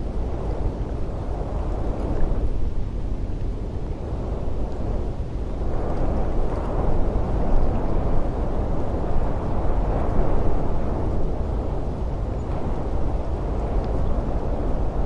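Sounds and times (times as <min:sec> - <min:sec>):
strong gusting wind: 0:00.0 - 0:15.0.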